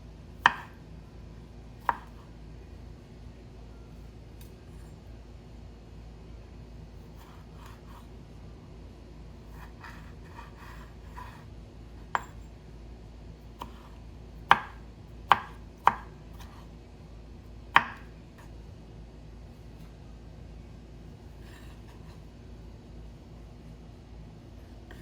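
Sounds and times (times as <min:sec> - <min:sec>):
knife scraping on cutting board: 0:09.5 - 0:11.5, 0:21.4 - 0:22.3.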